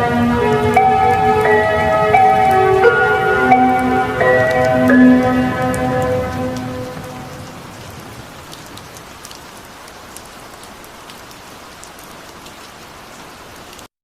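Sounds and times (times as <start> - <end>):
reverb-heavy slowed music: 0.0 - 8.2
rain falling: 0.0 - 13.9.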